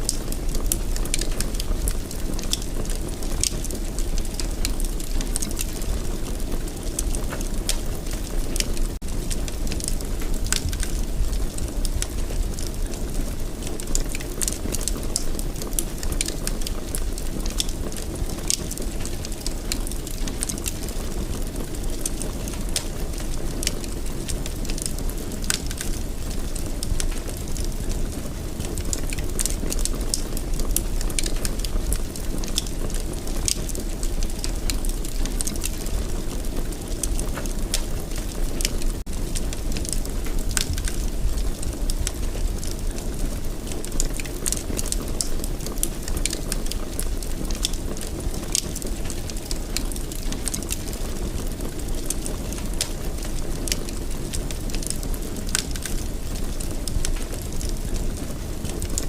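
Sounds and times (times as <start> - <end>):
fireplace fire crackling: 0.0 - 59.0
sharp snaps and pops: 28.7 - 36.0, 43.8 - 52.2.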